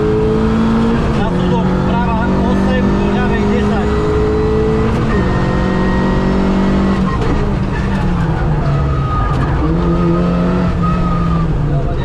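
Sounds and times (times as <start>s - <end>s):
rally car engine running hard: 0.0s - 12.0s.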